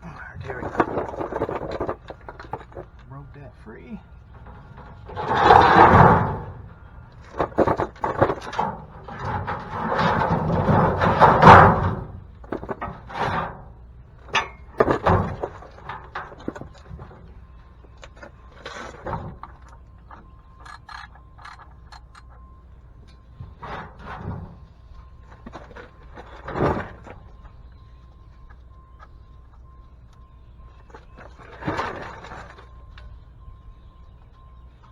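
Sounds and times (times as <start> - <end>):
tools clunking and knocking: 0.2 - 3.2, 4.0 - 27.6.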